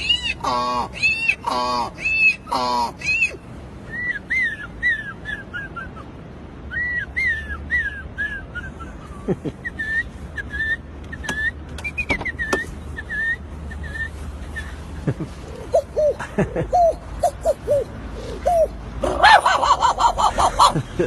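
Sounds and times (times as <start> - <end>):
bird-like whistled chirps: 9.7 - 14.8.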